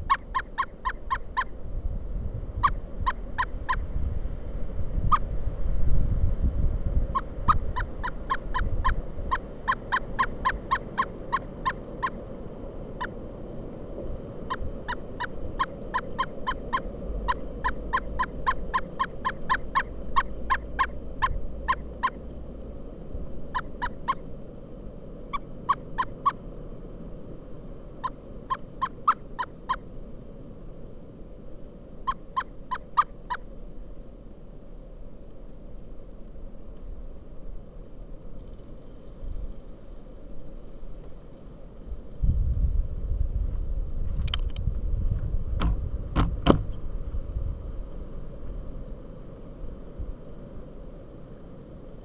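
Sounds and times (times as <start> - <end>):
woodpecker calling: 0.0 - 1.6, 2.6 - 3.9, 7.1 - 12.2, 12.9 - 13.2, 14.4 - 22.4, 23.5 - 24.3, 25.3 - 26.4, 28.0 - 29.9, 32.0 - 33.5.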